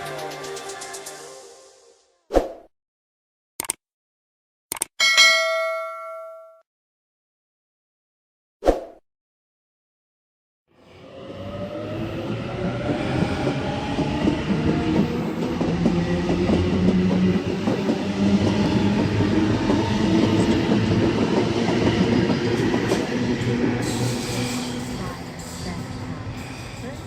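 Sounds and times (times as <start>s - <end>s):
train passing on tracks: 10.8s - 27.0s.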